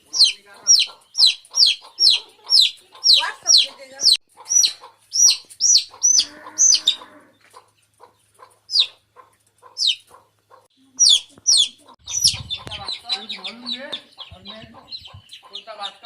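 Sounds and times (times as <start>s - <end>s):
chicks peeping: 0.0s - 16.0s
low cluck-like call: 6.0s - 7.4s.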